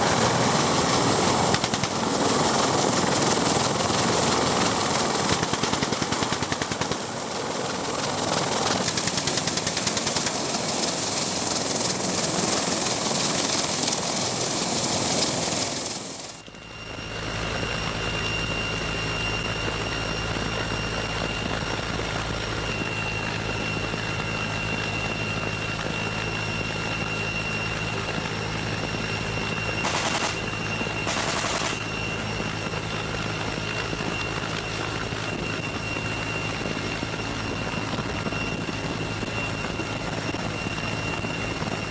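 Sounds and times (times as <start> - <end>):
helicopter engine and rotor noise: 0.0 - 41.9
high turbine whine: 0.0 - 41.9
heavy machine gun firing bursts: 29.8 - 31.8.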